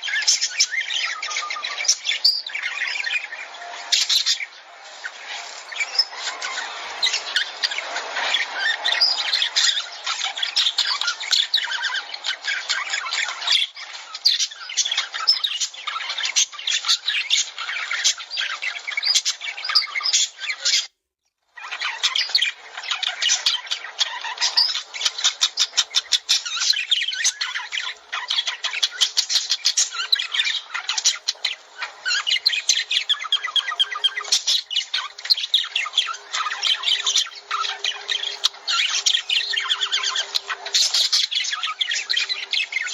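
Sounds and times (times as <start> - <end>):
lovebirds chattering: 0.0 - 20.9, 21.6 - 42.9.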